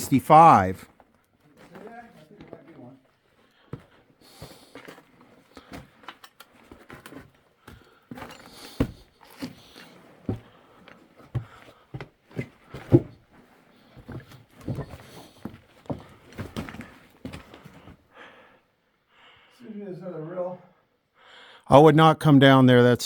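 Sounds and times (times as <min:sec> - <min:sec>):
footsteps on loose rock: 0:03.7 - 0:17.9.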